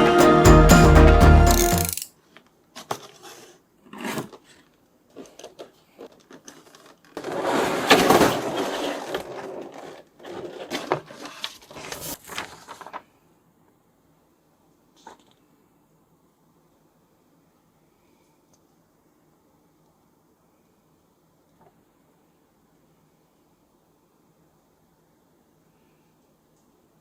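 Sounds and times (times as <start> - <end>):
short clicks: 1.5 - 2.1
packaging rustling and scraping: 2.8 - 13.1.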